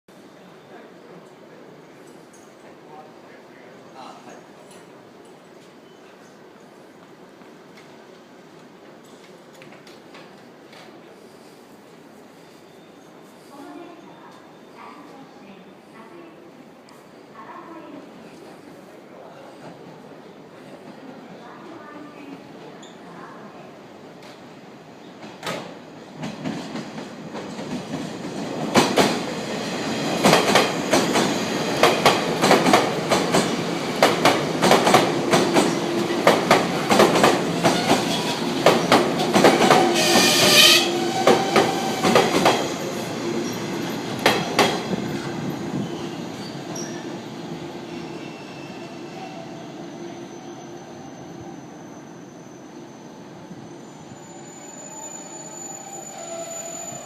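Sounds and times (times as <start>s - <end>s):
high wheel squeal: 47.8s - 57.0s.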